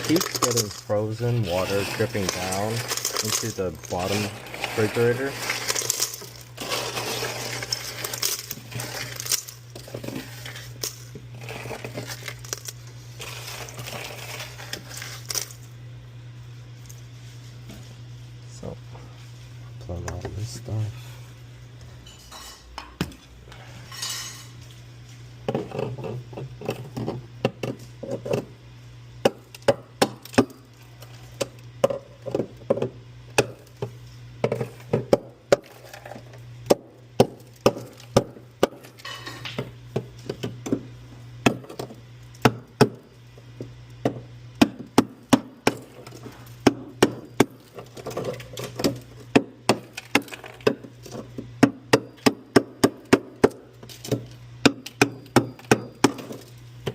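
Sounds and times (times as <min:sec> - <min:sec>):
hard objects knocking and clacking: 0:00.0 - 0:01.0
steady low hum: 0:00.0 - 0:56.9.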